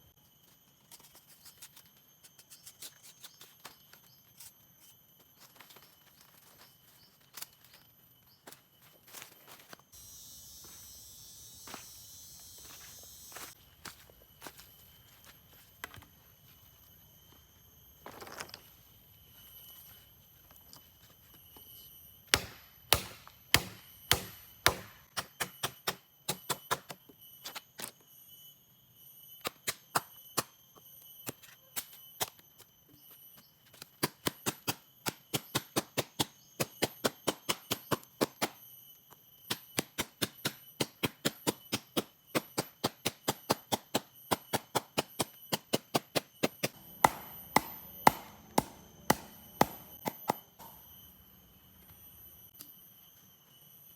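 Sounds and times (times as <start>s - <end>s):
blade chopping wood: 22.3s - 27.0s, 39.5s - 50.7s.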